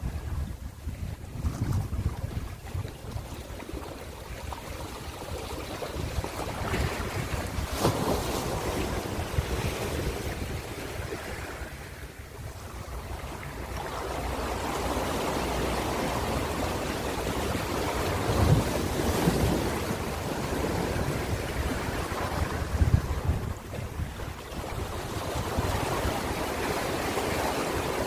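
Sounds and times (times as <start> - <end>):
ocean waves washing in: 3.7 - 28.0.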